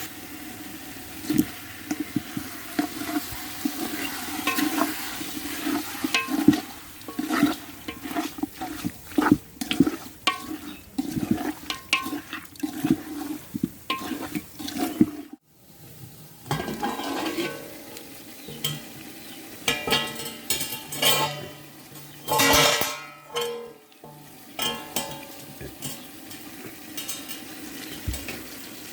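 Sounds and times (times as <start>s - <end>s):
food sizzling: 0.0s - 28.9s
soft bubbling: 1.2s - 15.4s
spoon scraping metal pan: 1.2s - 15.4s, 16.5s - 28.6s.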